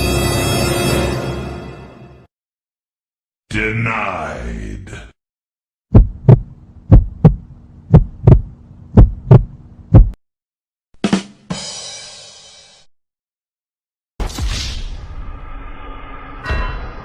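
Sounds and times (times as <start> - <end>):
heartbeat thumps: 5.9 - 10.2.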